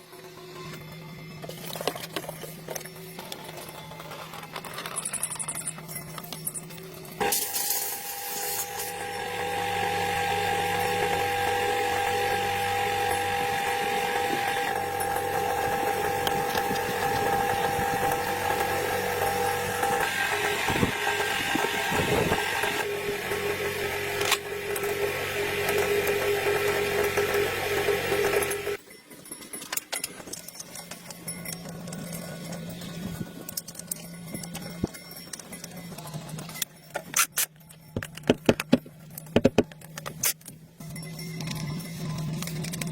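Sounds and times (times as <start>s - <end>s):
small power tool whining: 7.2s - 28.8s.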